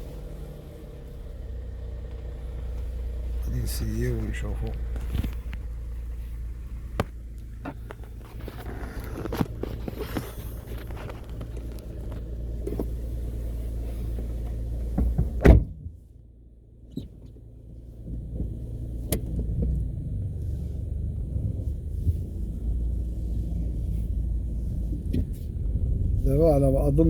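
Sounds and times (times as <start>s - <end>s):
car engine and road rumble: 0.0s - 27.0s
loud thump: 15.0s - 15.9s.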